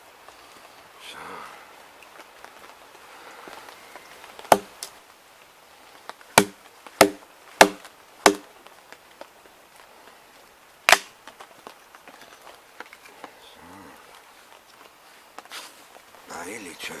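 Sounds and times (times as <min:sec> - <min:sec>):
blade chopping firewood: 0:04.4 - 0:04.9, 0:06.3 - 0:08.6, 0:10.9 - 0:11.2.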